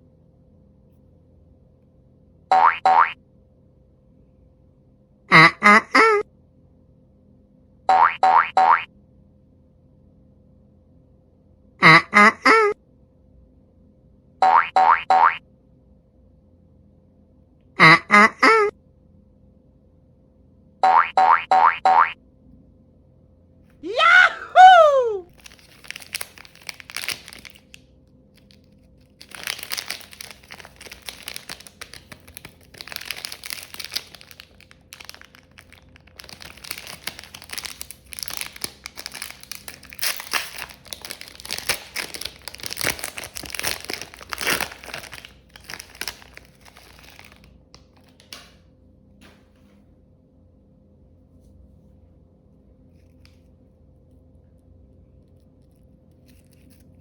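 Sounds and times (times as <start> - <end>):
crackling and crinkling: 25.3 - 48.5, 55.2 - 57.0.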